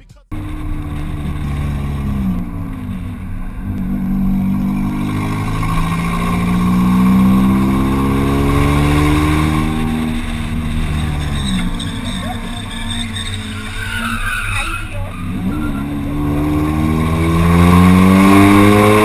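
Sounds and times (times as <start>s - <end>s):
car engine accelerating: 0.3s - 19.0s.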